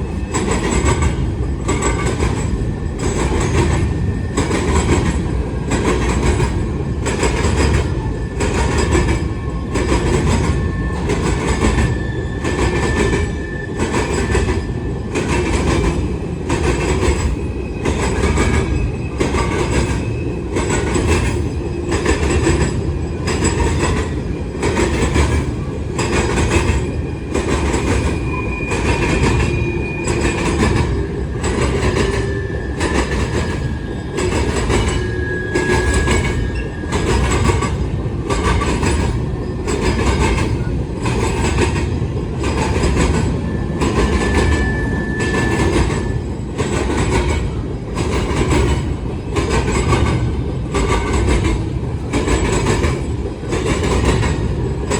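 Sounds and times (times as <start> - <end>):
train rumble: 0.0 - 54.9
train wheels clacking: 0.0 - 54.9
wheel squeal: 7.2 - 15.8, 16.7 - 41.6, 42.4 - 47.4.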